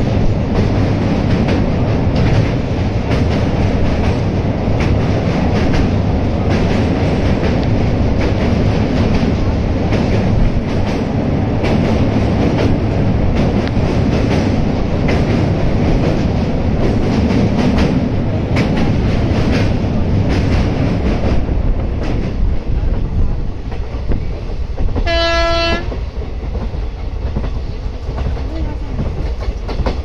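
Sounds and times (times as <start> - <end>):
rail joints clattering: 0.0 - 30.0
train wheels rumbling: 0.0 - 30.0
train horn blast: 25.0 - 26.0.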